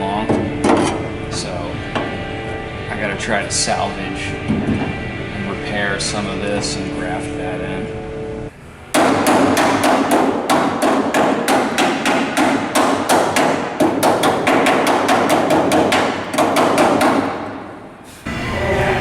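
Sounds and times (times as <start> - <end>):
hammer striking sheet metal: 8.9 - 17.8.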